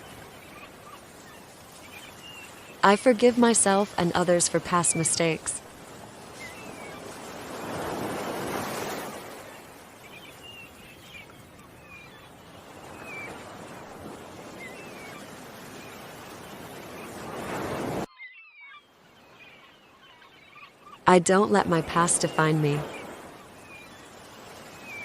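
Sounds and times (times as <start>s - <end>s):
small birds chirping: 0.0s - 7.9s, 9.3s - 17.2s, 18.1s - 25.0s
ocean surf washing in: 0.0s - 10.2s, 12.4s - 18.1s.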